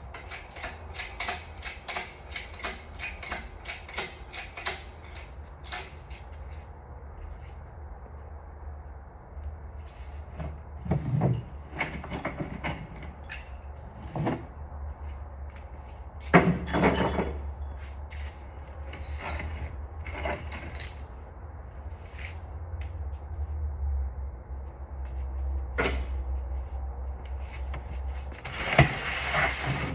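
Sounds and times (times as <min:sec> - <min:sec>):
metal tools clinking and clattering: 0:16.3 - 0:17.5.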